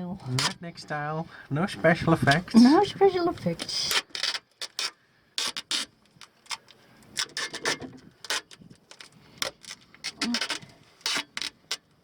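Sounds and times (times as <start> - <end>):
duct tape ripping off roll: 3.6 - 6.6, 10.0 - 11.8.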